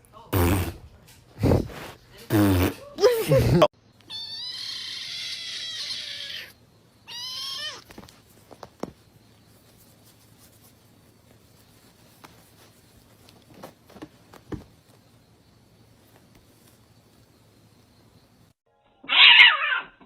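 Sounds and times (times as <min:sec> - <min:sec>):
cat meowing: 0:04.1 - 0:08.0, 0:19.1 - 0:20.0.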